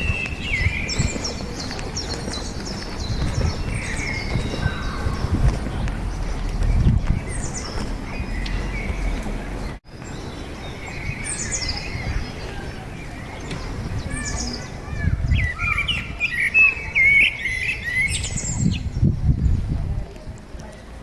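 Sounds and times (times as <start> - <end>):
small birds chirping and singing: 0.0 - 21.0.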